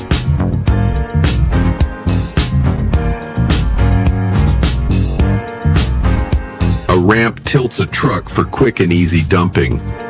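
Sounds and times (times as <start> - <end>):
funk music with drums bass guitar: 0.0 - 7.3.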